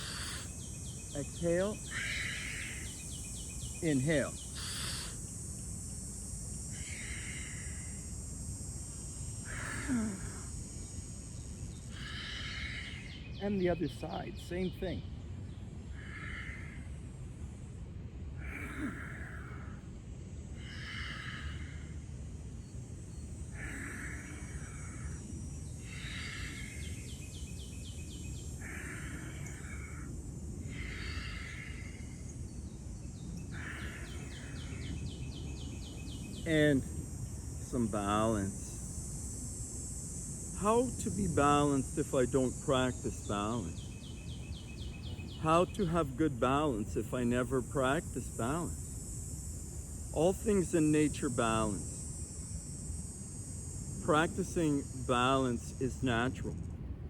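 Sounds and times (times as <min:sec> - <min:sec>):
man breathing: 0:00.0 - 0:00.7, 0:01.3 - 0:03.1, 0:04.5 - 0:05.3, 0:06.7 - 0:08.2, 0:11.9 - 0:13.1, 0:18.3 - 0:27.5, 0:28.5 - 0:32.4
insects hissing: 0:00.0 - 0:57.0.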